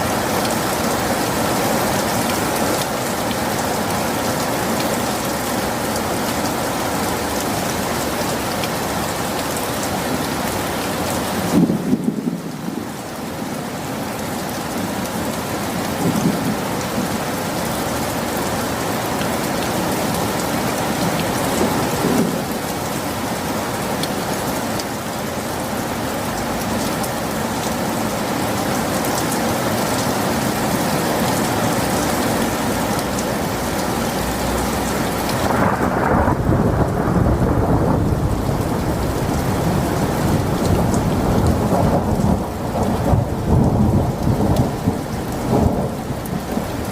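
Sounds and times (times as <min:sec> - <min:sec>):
heavy rain hiss: 0:00.0 - 0:46.9
low rumble of thunder: 0:11.4 - 0:12.9, 0:15.9 - 0:16.7, 0:35.4 - 0:46.7.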